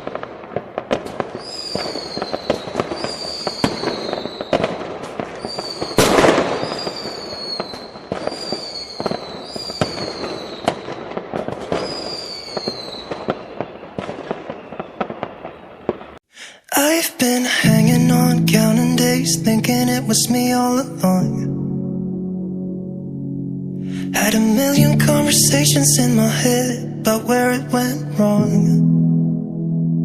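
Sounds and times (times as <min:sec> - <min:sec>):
fireworks crackling and popping: 0:00.0 - 0:16.2
heavy firework blast: 0:00.0 - 0:16.2
high falling whistle: 0:01.3 - 0:04.7, 0:05.4 - 0:10.8, 0:11.7 - 0:16.2.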